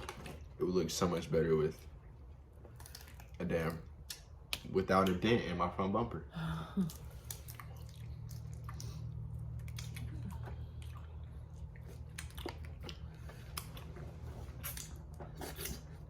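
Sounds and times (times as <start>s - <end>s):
steady low hum: 0.0s - 16.0s
wet chewing: 1.7s - 5.2s, 6.8s - 16.0s.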